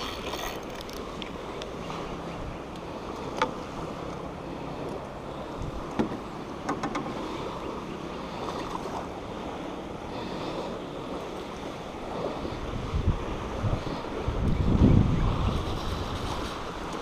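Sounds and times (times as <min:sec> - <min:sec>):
wind blowing on microphone: 0:12.3 - 0:17.0.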